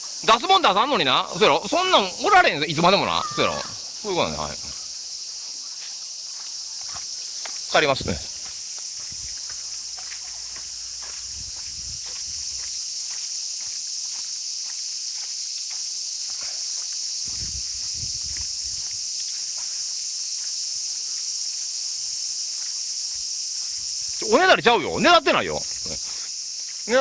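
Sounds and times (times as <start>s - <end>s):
insects chorus: 0.0s - 27.0s
footsteps ticks and taps: 5.8s - 17.0s.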